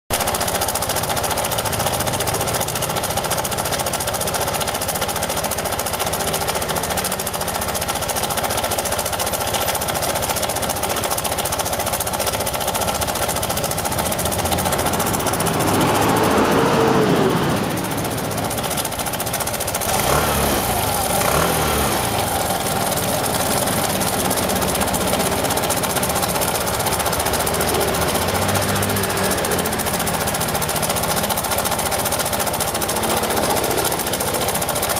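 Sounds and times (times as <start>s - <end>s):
scooter engine with rattling noise: 0.0s - 34.9s.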